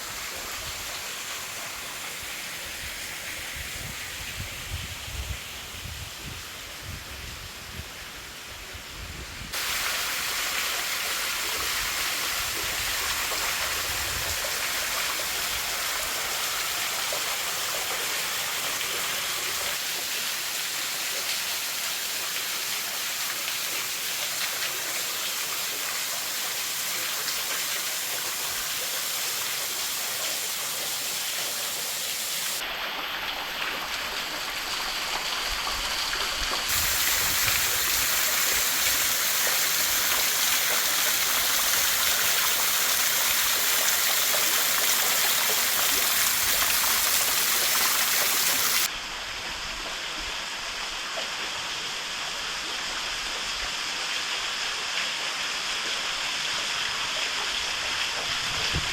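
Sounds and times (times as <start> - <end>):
waterfall rushing: 27.5 - 48.9.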